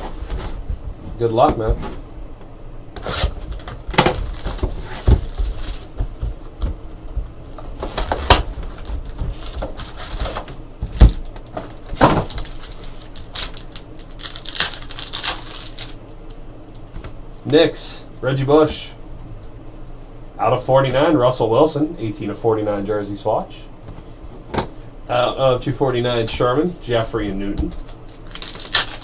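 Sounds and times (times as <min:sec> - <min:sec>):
card packs being torn open: 0:03.0 - 0:05.9, 0:07.8 - 0:16.0, 0:27.7 - 0:29.0
packaging crinkling: 0:03.0 - 0:06.0, 0:07.8 - 0:16.0, 0:27.7 - 0:29.0.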